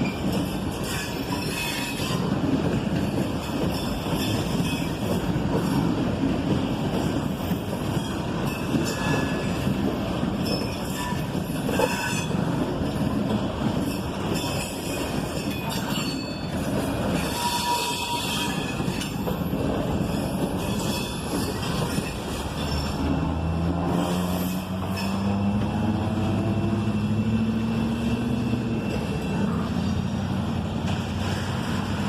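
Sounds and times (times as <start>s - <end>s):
train wheels rumbling on rail: 0.0s - 32.0s
high-pitched wheel squeals: 17.2s - 19.0s.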